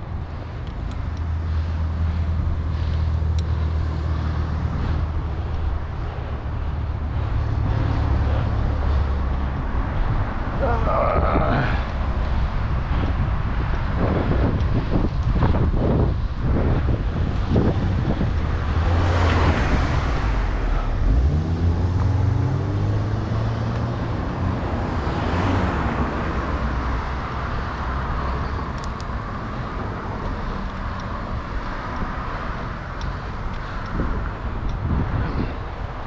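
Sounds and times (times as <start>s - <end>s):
motor vehicles passing: 0.0s - 36.0s
engine accelerating: 18.4s - 26.8s.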